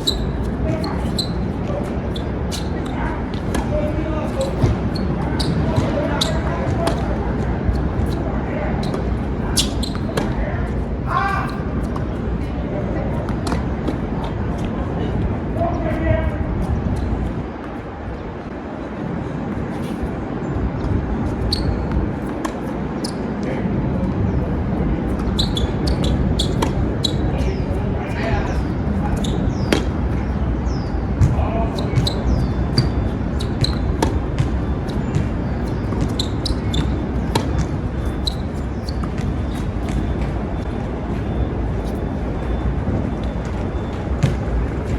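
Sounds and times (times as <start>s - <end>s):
wind buffeting microphone: 0.0s - 44.9s
tennis balls struck by rackets: 0.2s - 8.2s, 8.9s - 10.4s, 13.2s - 14.3s, 21.9s - 22.7s, 25.1s - 27.6s, 29.2s - 30.2s, 31.2s - 40.6s.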